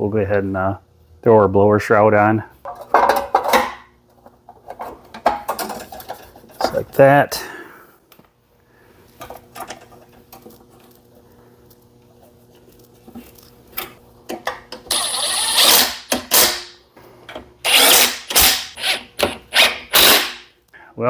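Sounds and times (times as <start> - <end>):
cordless drill driving screws: 14.9 - 16.6, 17.6 - 20.4.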